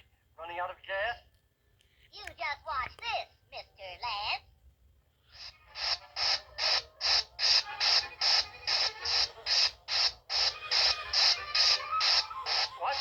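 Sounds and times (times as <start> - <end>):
balloon inflating hissing puffs: 5.4 - 12.7.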